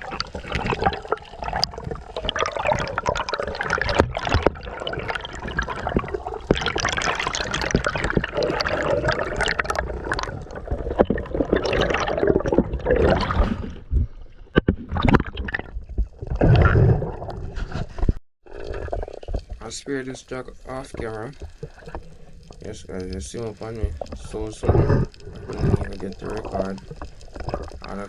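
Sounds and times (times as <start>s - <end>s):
sharp splashes and knocks: 0.0s - 17.6s
seawater sloshing and gurgling: 0.0s - 28.0s.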